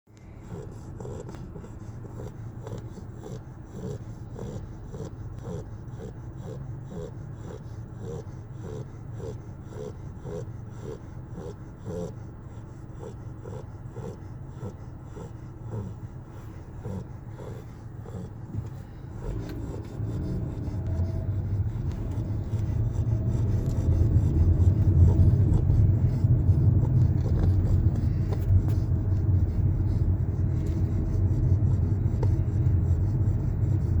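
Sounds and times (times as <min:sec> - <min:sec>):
low rasping rumble: 0:00.2 - 0:34.0
puppy snoring: 0:00.2 - 0:34.0.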